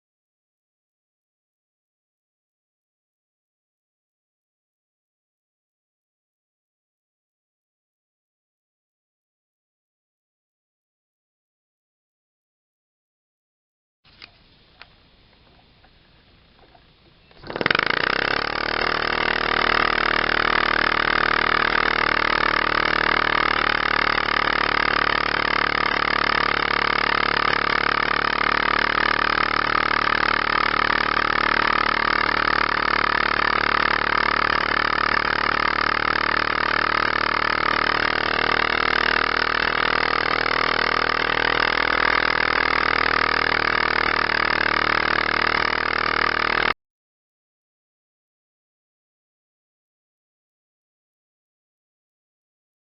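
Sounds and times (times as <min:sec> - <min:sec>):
model engine hissing hum: 0:17.3 - 0:46.7.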